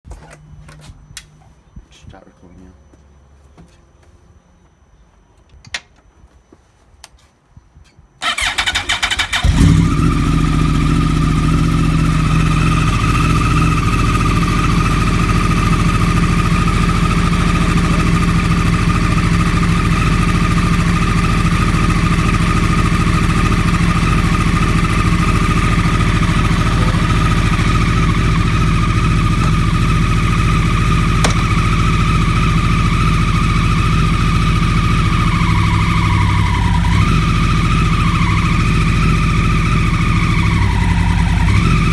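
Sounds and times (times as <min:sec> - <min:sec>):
motorcycle engine starting and idling: 0:08.2 - 0:41.9.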